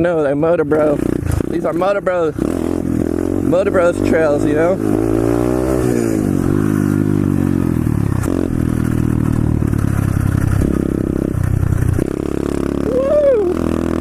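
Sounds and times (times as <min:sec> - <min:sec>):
motorbike engine revving: 0:00.0 - 0:14.0
bike rattling over rough ground: 0:06.3 - 0:12.8.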